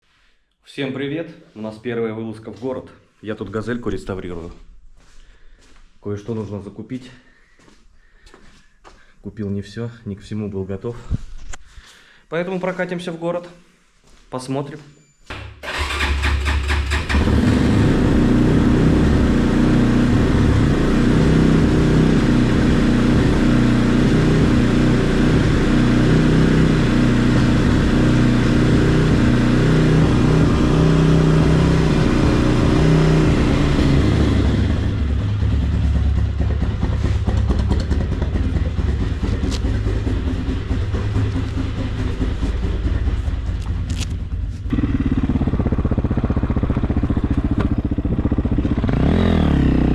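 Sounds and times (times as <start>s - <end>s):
motorcycle engine running: 15.7s - 49.9s.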